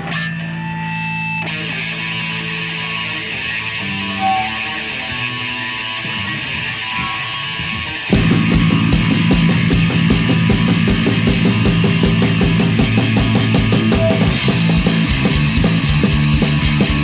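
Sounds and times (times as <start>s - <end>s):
bass guitar: 0.0s - 17.0s
distorted electric guitar: 0.0s - 17.0s
fast driving drums: 6.6s - 17.0s.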